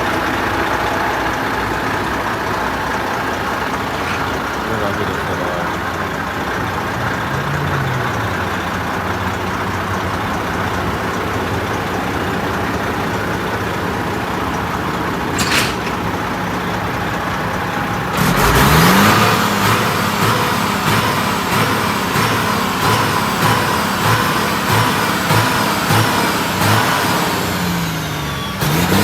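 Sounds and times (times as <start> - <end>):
truck diesel engine running: 0.0 - 29.0.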